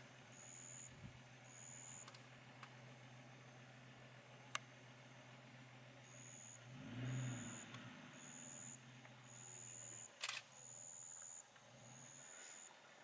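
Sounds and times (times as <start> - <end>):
insect chirping: 0.1 - 2.2, 4.7 - 12.8
sharp click: 10.2 - 10.5.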